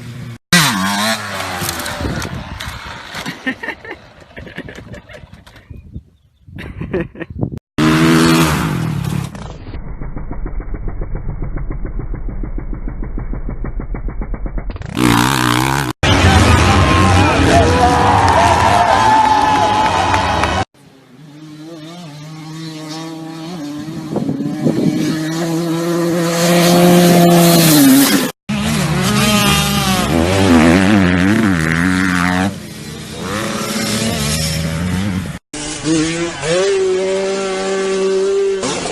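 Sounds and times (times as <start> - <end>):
motocross bike engine revving: 0.0 - 3.3, 7.8 - 38.9
dirt bike engine running: 7.8 - 18.5.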